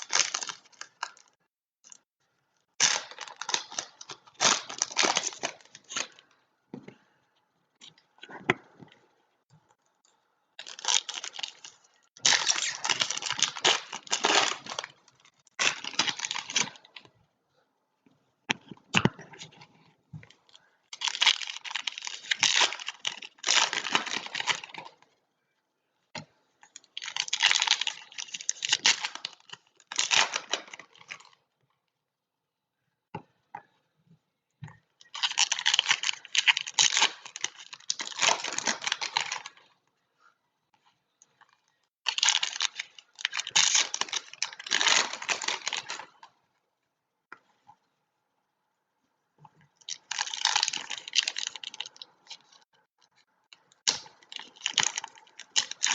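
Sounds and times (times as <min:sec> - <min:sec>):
foil wrappers tearing and crinkling: 0:35.2 - 0:39.6, 0:42.1 - 0:46.2, 0:49.9 - 0:52.6, 0:53.8 - 0:55.9.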